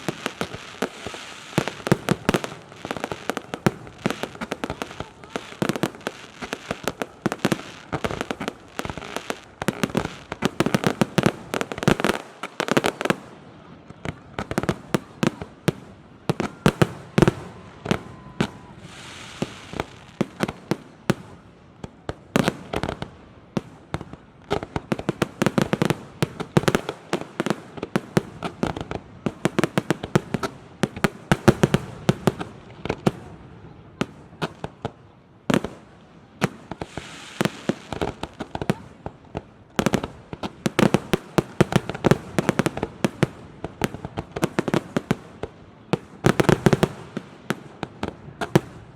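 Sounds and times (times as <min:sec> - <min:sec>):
fireworks hissing crackle: 0:00.0 - 0:33.4, 0:35.5 - 0:48.9
fireworks bangs: 0:00.0 - 0:48.9.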